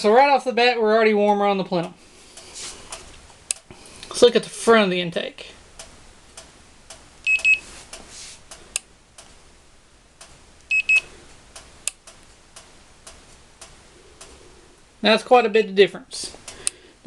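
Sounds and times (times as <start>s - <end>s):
temperature gun double beeps: 7.2s - 7.6s, 10.7s - 11.1s.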